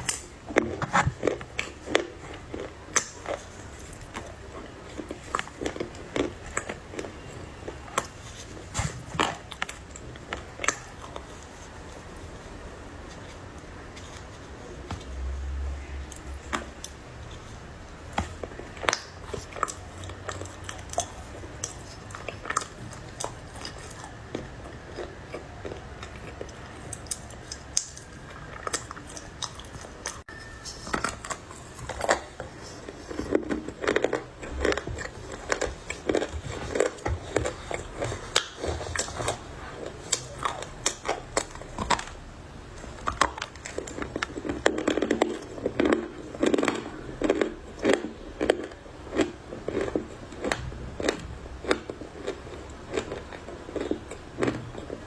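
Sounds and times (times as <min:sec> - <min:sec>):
crunching and chewing: 0:00.0 - 0:55.0.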